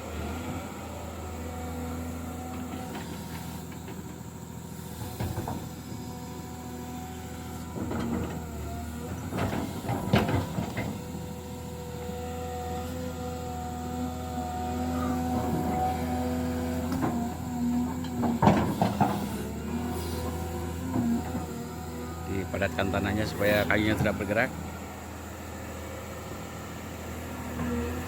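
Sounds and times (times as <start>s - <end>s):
construction machine engine running: 0.0s - 28.0s
knocks and clatters: 9.3s - 11.0s, 17.9s - 19.4s.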